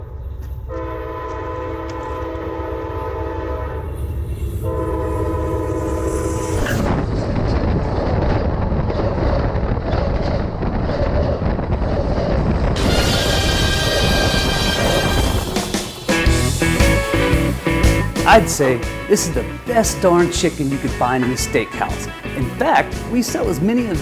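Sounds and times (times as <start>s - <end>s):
train rumbling by: 0.0s - 24.0s
train horn blasts: 0.7s - 6.9s, 12.8s - 23.9s.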